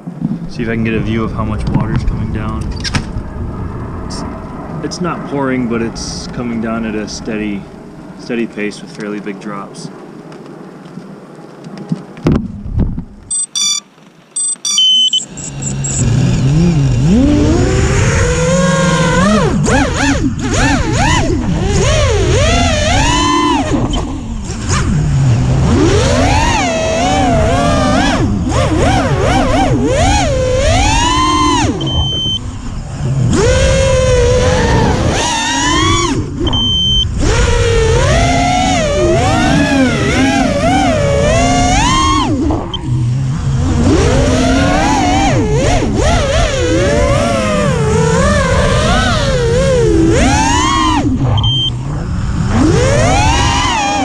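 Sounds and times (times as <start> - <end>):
drone motors whining: 10.0 - 54.0
electronic beeps: 13.3 - 16.2, 31.8 - 32.5, 36.4 - 37.1, 51.4 - 51.8.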